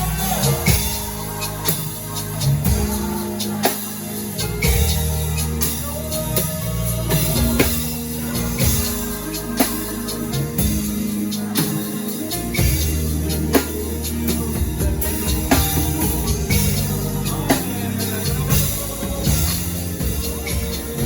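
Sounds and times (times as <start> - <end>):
band playing: 0.0 - 21.0
drum kit hits: 0.0 - 21.0.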